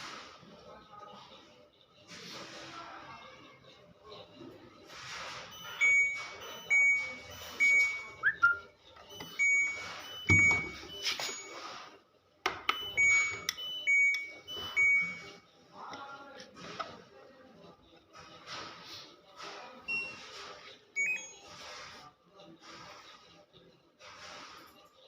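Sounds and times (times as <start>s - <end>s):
washing machine buzzer beeps: 5.3s - 11.9s, 12.6s - 15.5s, 19.8s - 20.4s, 21.0s - 21.8s.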